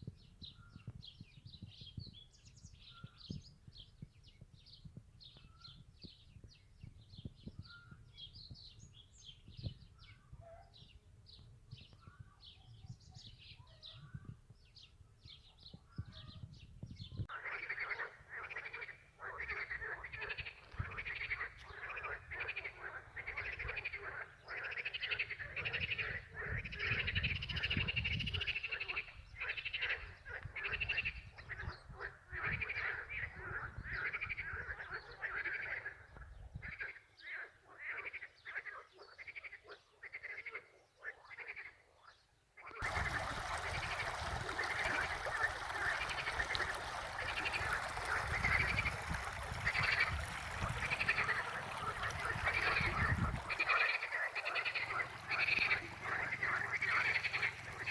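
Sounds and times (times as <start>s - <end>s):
frogs croaking: 17.3s - 41.9s, 42.6s - 57.9s.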